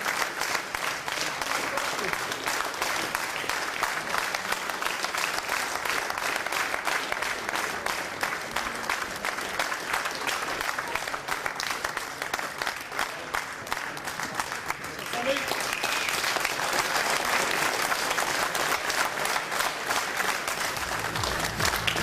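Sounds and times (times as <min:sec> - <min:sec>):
audience applauding: 0:00.0 - 0:22.0.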